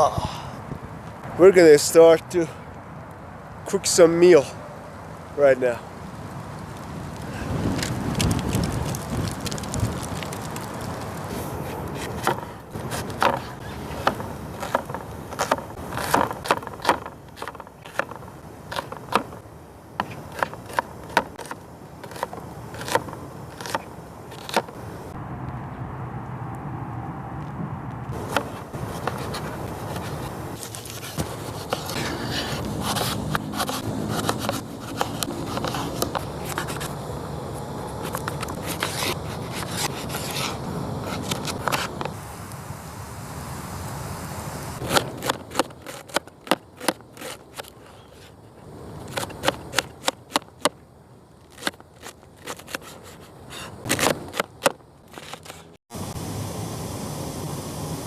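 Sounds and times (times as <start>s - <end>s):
firewood snapping and crackling: 4.9s - 19.4s, 28.1s - 42.2s, 44.8s - 48.0s, 51.4s - 53.2s.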